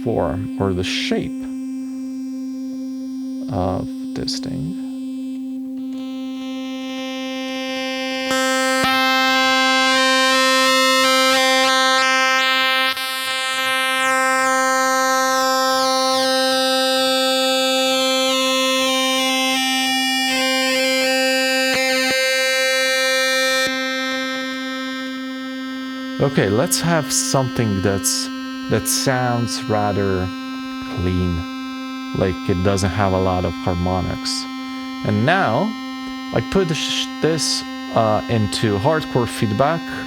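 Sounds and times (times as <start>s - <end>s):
plinky synthesizer tone: 17.9s - 23.8s, 26.2s - 31.5s, 32.2s - 40.0s.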